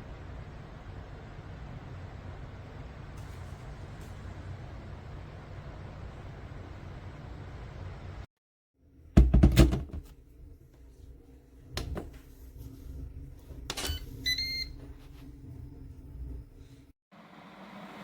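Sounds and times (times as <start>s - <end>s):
kettle electronic beep: 13.8s - 14.8s.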